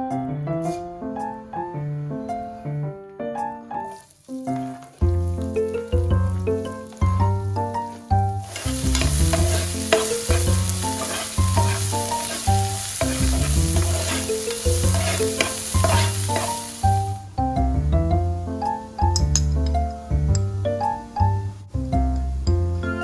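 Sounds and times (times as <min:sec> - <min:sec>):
background music: 0:00.0 - 0:23.0
food sizzling in oil: 0:03.8 - 0:17.6.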